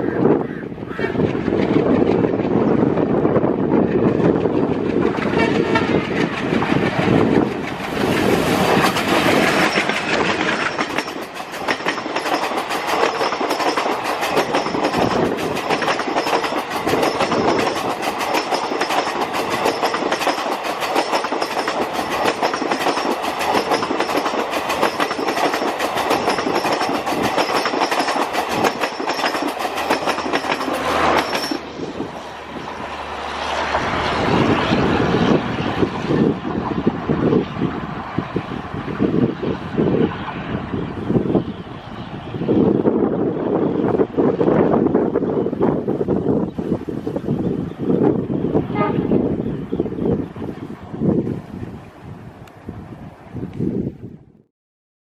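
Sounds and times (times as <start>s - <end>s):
train wheels clattering over rails: 1.1s - 36.8s.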